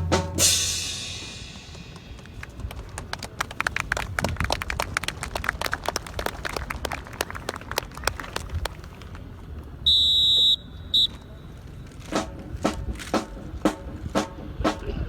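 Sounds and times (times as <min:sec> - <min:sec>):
whistle blasts: 0:09.8 - 0:11.3
boots and rifles clacking: 0:11.1 - 0:14.4.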